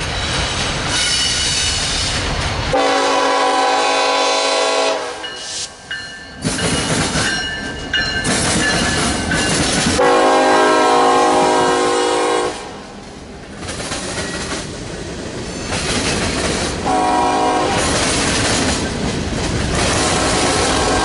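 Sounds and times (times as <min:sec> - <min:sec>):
locomotive air horn blasts: 0:02.7 - 0:05.5, 0:10.0 - 0:12.8, 0:16.8 - 0:17.9, 0:19.9 - 0:21.0
train wheels clattering on rails: 0:05.2 - 0:11.6, 0:13.0 - 0:21.0.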